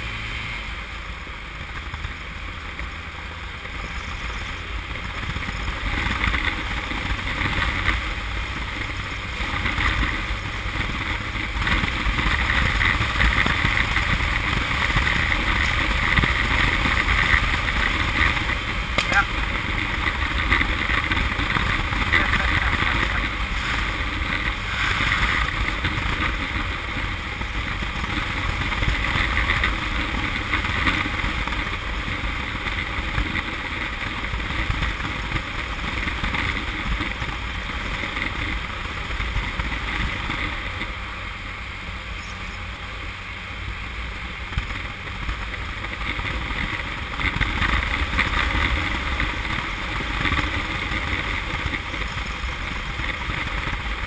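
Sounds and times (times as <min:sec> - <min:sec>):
motorcycle engine running rough: 0:00.0 - 0:54.0
wind on microphone: 0:08.9 - 0:31.8.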